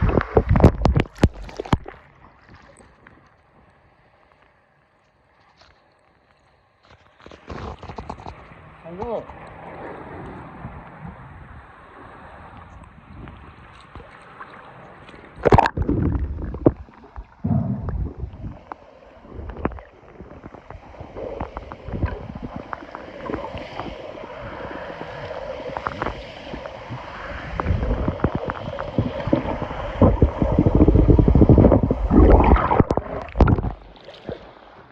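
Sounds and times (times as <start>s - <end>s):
waves sloshing and splashing: 0.0s - 4.6s, 5.5s - 34.9s
wind buffeting microphone: 15.7s - 18.7s, 25.8s - 33.9s.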